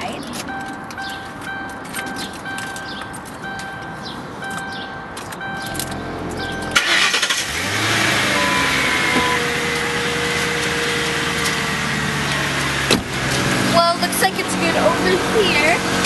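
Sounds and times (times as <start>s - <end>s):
car engine cranking and idling: 0.0s - 16.0s
repeating electronic chime: 0.5s - 6.9s.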